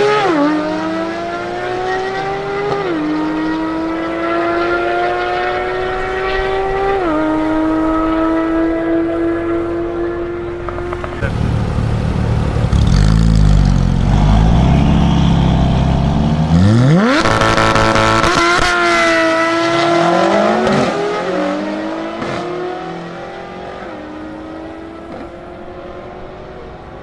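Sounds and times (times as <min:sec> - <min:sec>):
sports car engine revving: 0:00.0 - 0:26.3.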